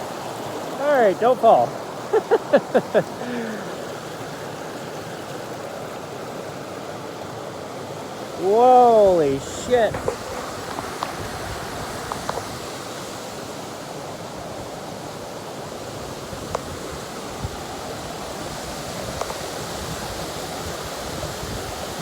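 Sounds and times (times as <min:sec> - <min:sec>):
waterfall roaring: 0:00.0 - 0:15.8.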